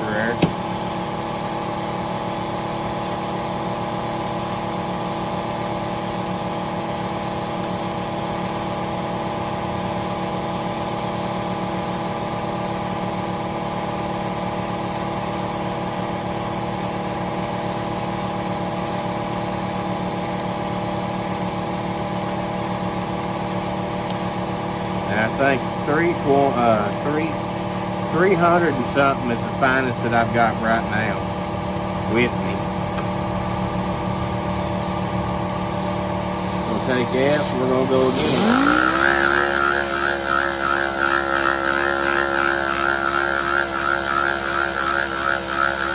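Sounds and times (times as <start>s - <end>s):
motor humming: 22.2s - 45.9s.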